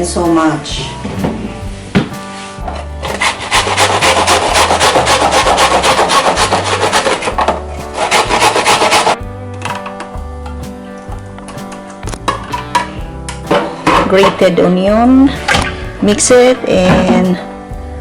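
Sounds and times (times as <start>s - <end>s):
background music: 0.0s - 18.0s
onion rasping on a grater: 3.0s - 9.2s.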